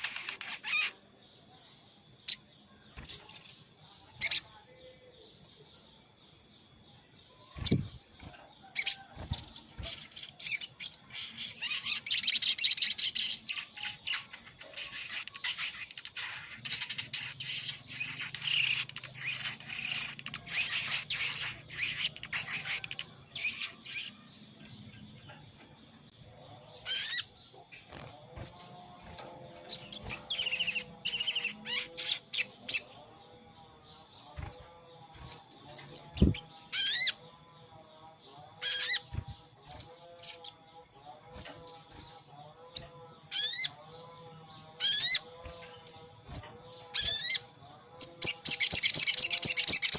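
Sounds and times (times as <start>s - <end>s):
faint steady high tone: 1.0s - 13.5s
high bird chirps: 2.2s - 4.6s, 7.4s - 25.4s, 26.8s - 32.9s, 44.8s - 49.9s.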